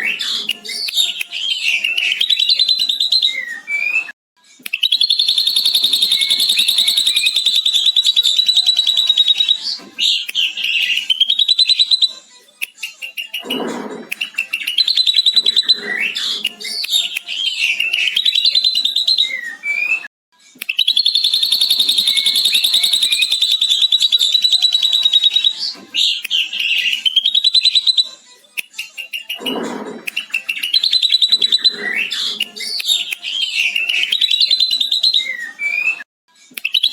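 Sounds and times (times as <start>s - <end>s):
bird whistles and rasping calls: 4.8s - 12.1s, 13.2s - 20.0s, 20.7s - 28.1s, 29.1s - 36.0s
bird trilling: 4.9s - 12.0s, 20.9s - 28.0s.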